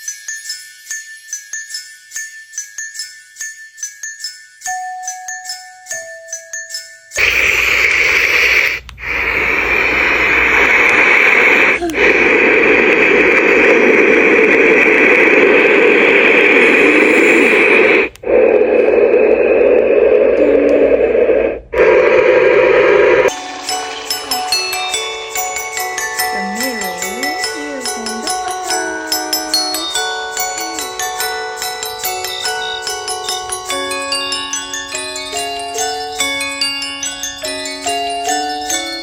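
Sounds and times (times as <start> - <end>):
chiming mallet music: 0.0 - 7.2, 23.3 - 39.0
white noise machine: 7.2 - 38.5.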